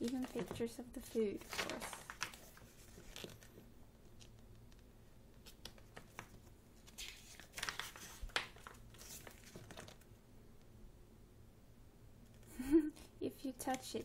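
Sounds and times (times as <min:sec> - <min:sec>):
book pages turning: 0:00.0 - 0:04.4, 0:05.4 - 0:10.1.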